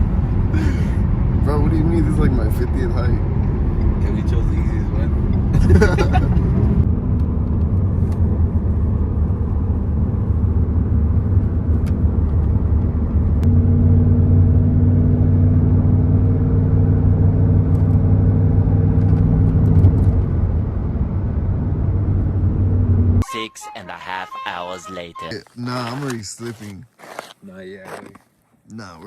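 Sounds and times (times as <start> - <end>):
car engine hum: 0.0 - 26.9
road rumble: 0.0 - 29.0.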